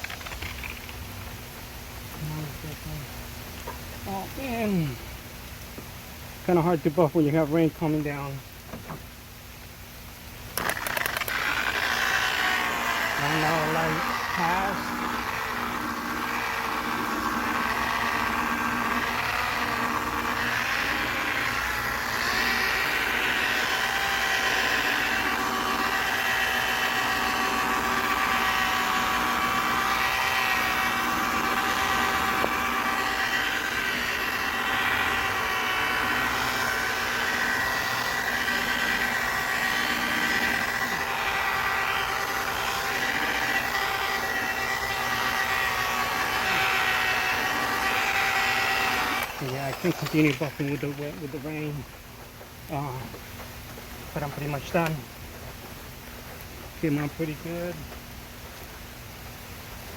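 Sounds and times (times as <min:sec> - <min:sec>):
power buffer motor whine: 0:10.6 - 0:51.9.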